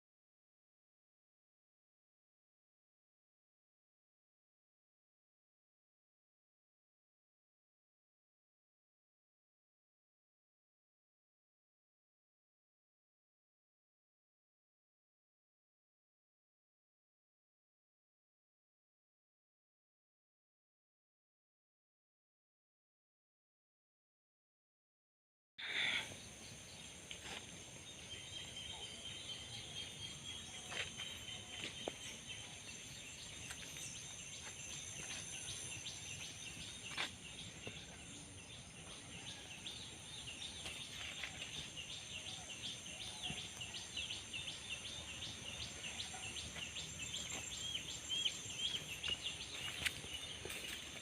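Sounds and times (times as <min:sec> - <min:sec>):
birds chirping: 0:25.6 - 0:51.0.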